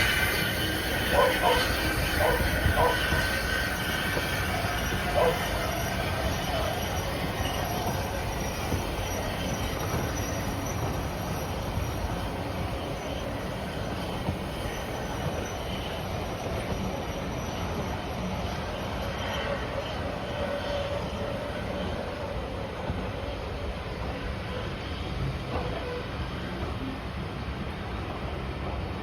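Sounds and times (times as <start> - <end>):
faint wheel squeal: 0.0 - 27.0
train rumbling on rails: 0.0 - 29.0.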